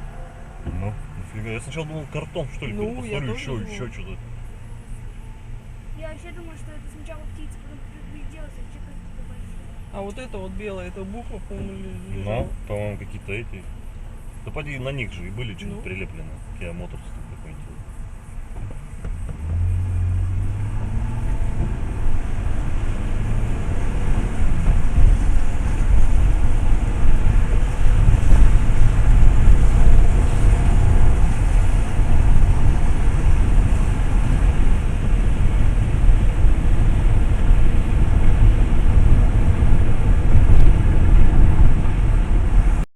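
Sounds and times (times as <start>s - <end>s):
road and engine rumble: 0.0s - 42.9s.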